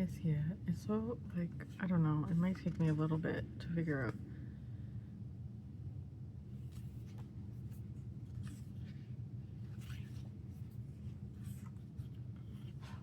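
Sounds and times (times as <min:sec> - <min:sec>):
low background hum: 0:00.0 - 0:13.0
paper pages rustling: 0:06.6 - 0:13.0.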